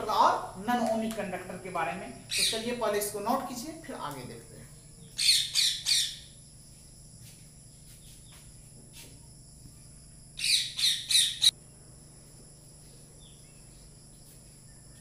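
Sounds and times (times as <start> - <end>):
bird chirping harshly: 2.3 - 2.6, 5.2 - 6.2, 10.4 - 11.5.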